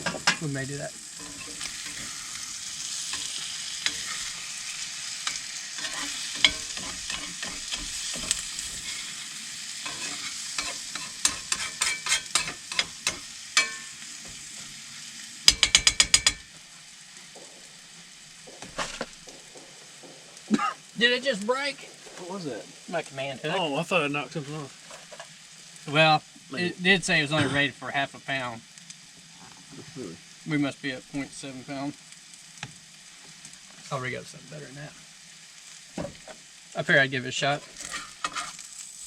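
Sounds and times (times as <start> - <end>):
utensil scraping and tapping pan: 0.0 - 0.5, 5.2 - 9.0, 9.8 - 14.4, 15.5 - 16.5, 37.6 - 38.6
food sizzling in a frying pan: 0.0 - 39.0.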